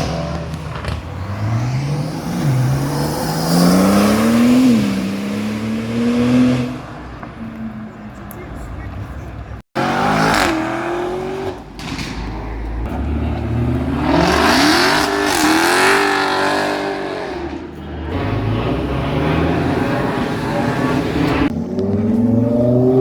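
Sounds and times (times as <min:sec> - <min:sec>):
car engine revving hard: 0:00.0 - 0:07.0, 0:09.8 - 0:11.7, 0:12.8 - 0:23.0.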